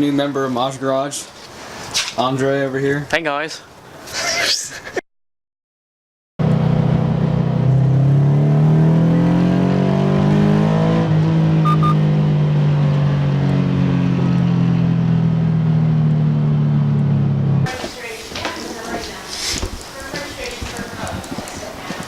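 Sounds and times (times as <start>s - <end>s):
car engine accelerating hard: 6.4s - 17.7s.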